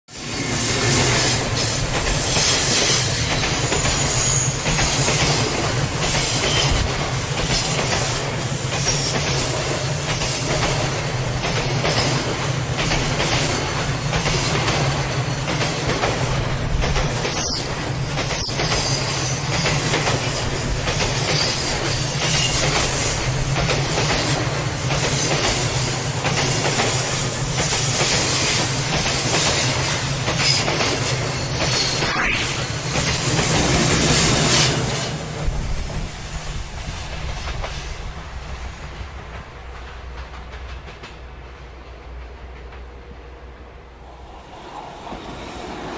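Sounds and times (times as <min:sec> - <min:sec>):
train running noise: 0:00.1 - 0:45.9
wheel squeal: 0:00.5 - 0:05.4, 0:16.4 - 0:23.6, 0:31.3 - 0:35.1
wheels clicking over rail joints: 0:01.4 - 0:34.4.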